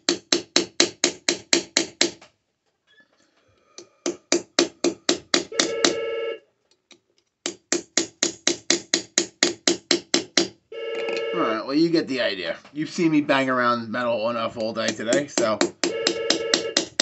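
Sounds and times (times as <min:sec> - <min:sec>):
hammer striking metal: 0:04.1 - 0:06.0, 0:14.6 - 0:17.0.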